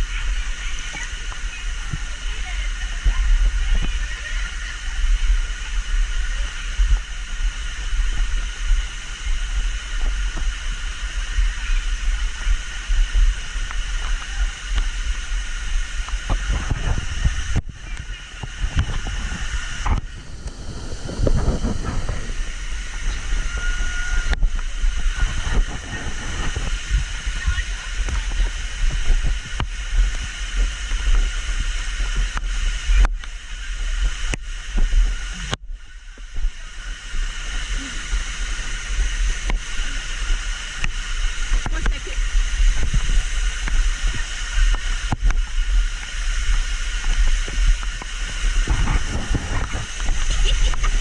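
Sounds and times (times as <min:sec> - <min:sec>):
water rushing: 0:00.0 - 0:51.0
wind buffeting microphone: 0:00.0 - 0:51.0
low thumps: 0:16.0 - 0:31.2.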